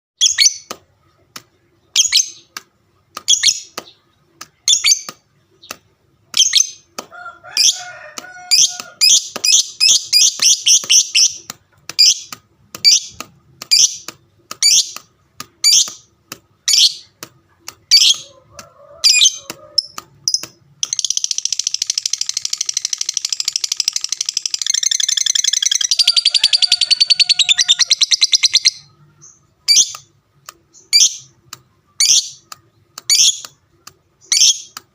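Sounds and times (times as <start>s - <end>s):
lovebird chirping: 0.2s - 1.2s, 1.8s - 2.5s, 3.2s - 6.9s, 8.4s - 17.2s, 17.8s - 18.4s, 19.0s - 30.1s, 30.7s - 34.8s
lovebird chattering trill: 19.0s - 30.1s.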